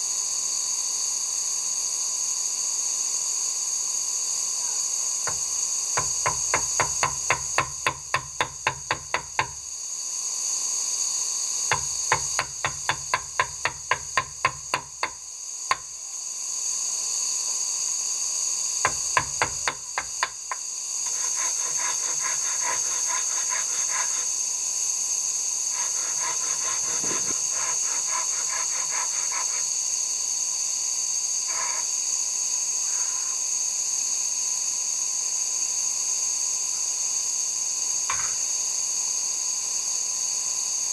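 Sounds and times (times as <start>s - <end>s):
hand tool strokes on wood: 18.9s - 30.0s, 31.4s - 31.9s.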